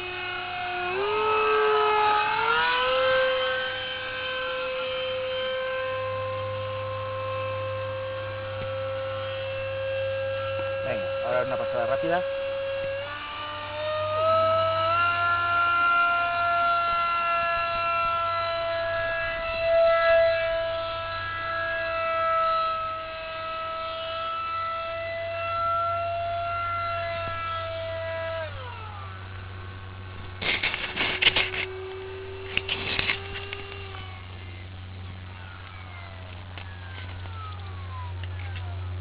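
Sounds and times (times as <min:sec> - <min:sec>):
electric ducted fan whining: 0:00.0 - 0:39.0
crackling noise bursts: 0:29.0 - 0:39.0.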